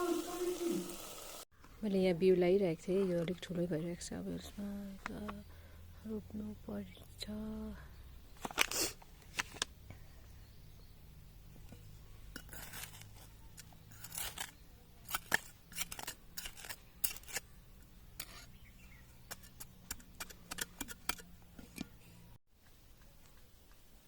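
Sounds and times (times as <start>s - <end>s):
small tool scraping garden soil: 11.7s - 22.3s.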